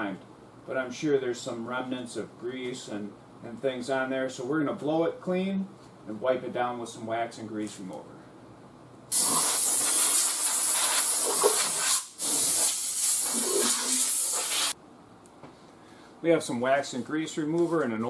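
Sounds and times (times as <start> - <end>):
air blow gun hissing: 9.1 - 14.8.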